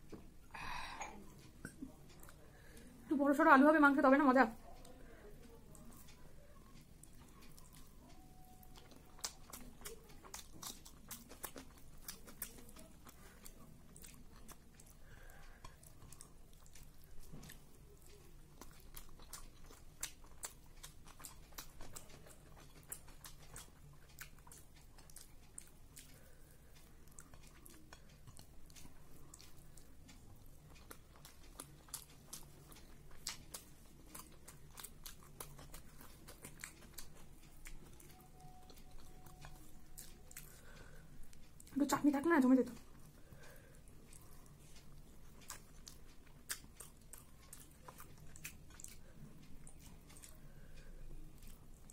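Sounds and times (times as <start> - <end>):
faint low hum: 0.0 - 51.9
chewing and mouth smacks: 4.6 - 51.9.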